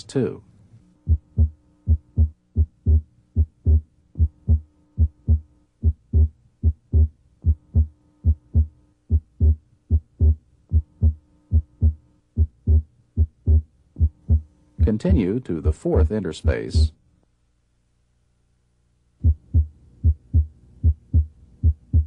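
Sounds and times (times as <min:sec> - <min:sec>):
faint steady hum: 0:00.0 - 0:22.0
heartbeat through stethoscope: 0:01.1 - 0:14.5, 0:16.5 - 0:16.9, 0:19.2 - 0:22.0.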